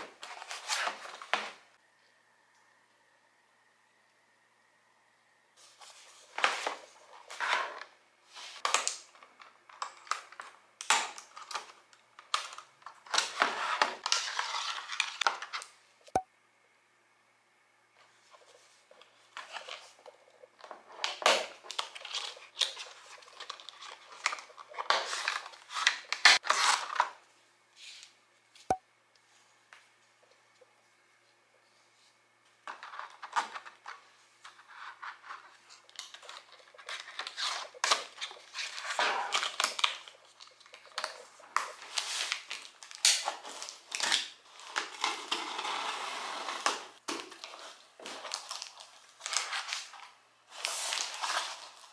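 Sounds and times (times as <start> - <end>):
plastic packaging crinkling: 19.4 - 27.2, 32.8 - 45.7, 47.1 - 51.9.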